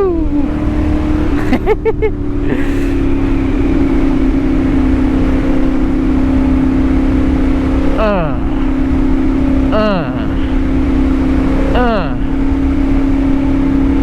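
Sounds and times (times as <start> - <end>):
engine blips: 0.0 - 14.0
motorcycle engine running: 0.0 - 14.0.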